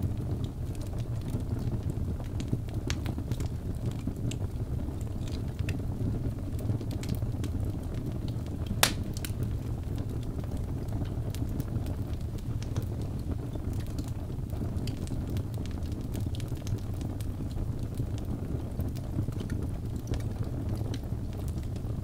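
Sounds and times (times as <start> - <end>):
fire crackles: 0.0 - 22.0
log fire rumbling: 0.0 - 22.0
sharp pop from fire: 8.6 - 9.4.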